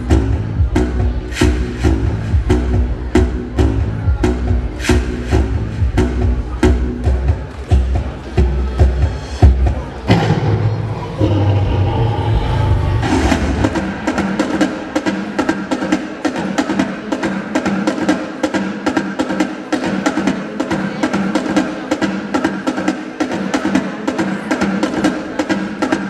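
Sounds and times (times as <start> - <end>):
deep bass: 0.0 - 14.4
sustained pitched notes: 10.1 - 14.5
rapid drum strikes: 13.0 - 26.0.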